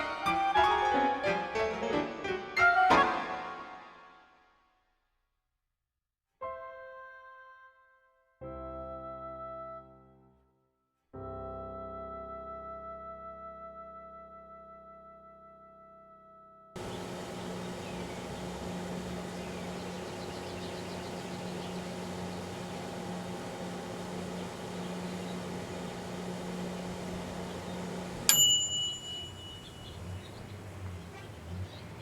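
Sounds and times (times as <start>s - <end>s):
microwave end-of-cycle beep: 16.8s - 30.4s
microwave oven humming: 16.8s - 32.0s.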